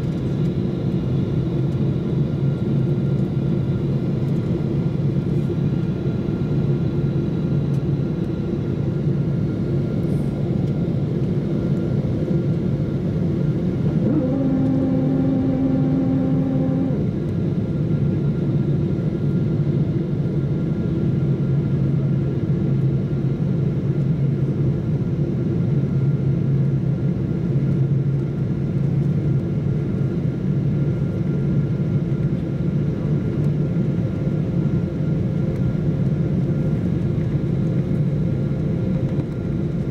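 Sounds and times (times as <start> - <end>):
airliner engine hum and airflow: 0.0 - 39.9
pitched tone with overtones: 14.0 - 17.1.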